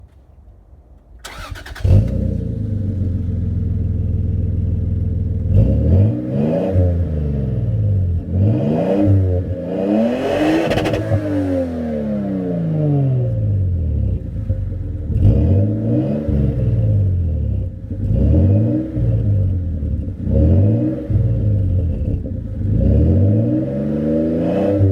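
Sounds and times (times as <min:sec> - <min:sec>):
engine starter cranking: 0:01.2 - 0:02.2
car engine idling and revving: 0:01.2 - 0:24.9.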